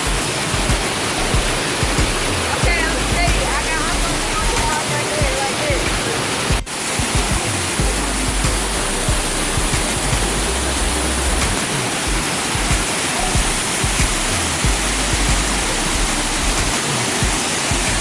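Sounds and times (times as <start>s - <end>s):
waterfall rushing: 0.0s - 18.0s
deep rumble: 0.7s - 4.6s, 7.3s - 11.6s, 12.7s - 16.7s.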